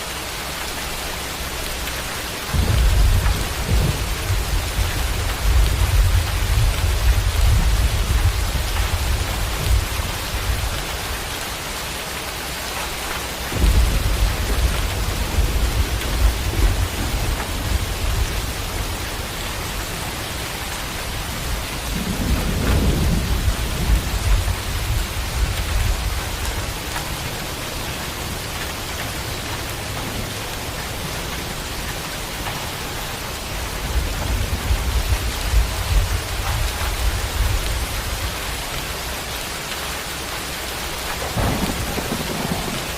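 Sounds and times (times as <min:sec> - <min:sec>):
steady rain falling: 0:00.0 - 0:42.9
low thunder rumbling: 0:02.5 - 0:11.3, 0:13.5 - 0:27.7, 0:32.4 - 0:39.1, 0:40.9 - 0:42.9.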